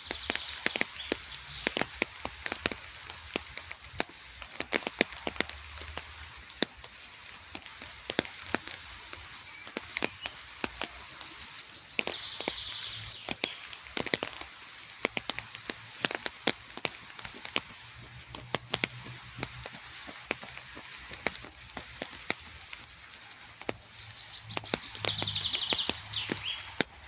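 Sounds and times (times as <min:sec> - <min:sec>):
heavy raindrops ticking: 0:00.0 - 0:27.0
rain falling: 0:00.0 - 0:27.0
songbird trilling: 0:11.1 - 0:13.7, 0:23.9 - 0:26.8.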